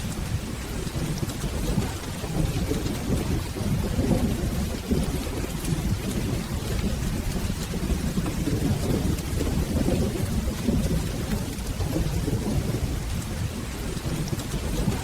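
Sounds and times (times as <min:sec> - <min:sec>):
rolling thunder: 0:00.0 - 0:15.0
steady rain: 0:00.0 - 0:15.0.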